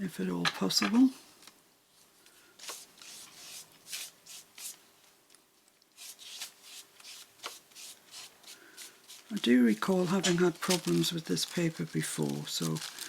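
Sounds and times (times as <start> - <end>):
paper rubbing strokes: 2.6 - 4.8, 6.0 - 13.0.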